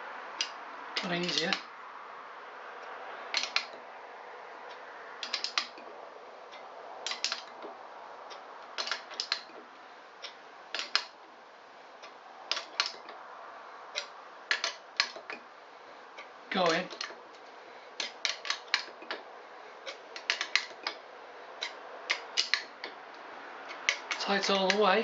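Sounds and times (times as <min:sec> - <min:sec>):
metal tool clicking: 0:03.3 - 0:03.8, 0:05.2 - 0:05.8, 0:07.1 - 0:07.5, 0:08.8 - 0:09.5, 0:10.7 - 0:11.1, 0:12.5 - 0:13.0, 0:21.6 - 0:22.7.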